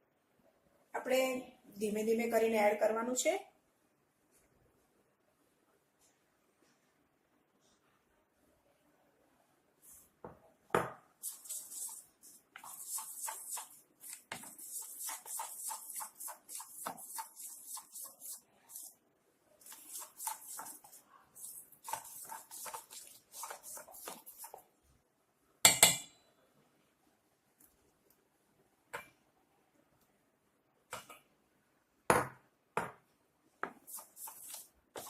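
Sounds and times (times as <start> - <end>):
spoon scraping batter in bowl: 11.2 - 19.0, 19.6 - 24.7, 33.7 - 35.0.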